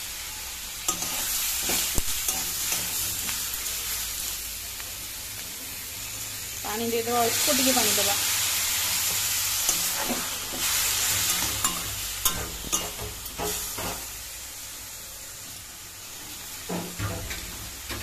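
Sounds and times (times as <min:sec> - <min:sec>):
food sizzling in a pan: 0:00.0 - 0:18.0
spatula scraping a pan: 0:00.9 - 0:03.3, 0:09.0 - 0:14.1.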